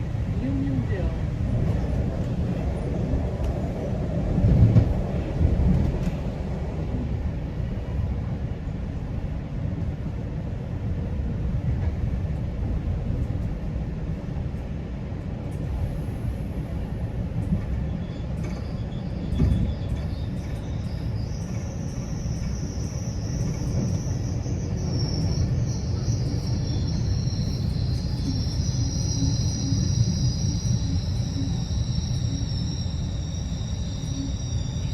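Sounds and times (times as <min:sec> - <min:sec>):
train wheels rumbling on rail: 0:00.0 - 0:34.9.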